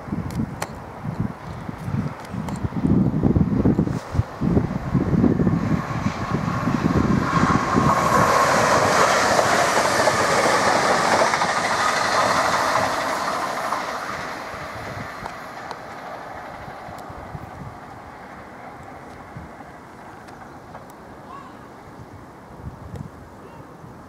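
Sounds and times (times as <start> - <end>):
train passing at speed: 0.7 - 22.8.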